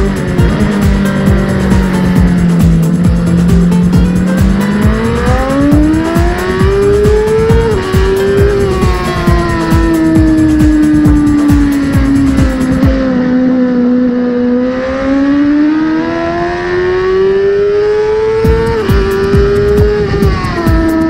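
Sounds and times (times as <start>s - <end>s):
wind buffeting microphone: 0.0s - 13.1s, 18.2s - 21.0s
gear upshift: 0.0s - 21.0s
motorcycle engine accelerating: 0.0s - 21.0s.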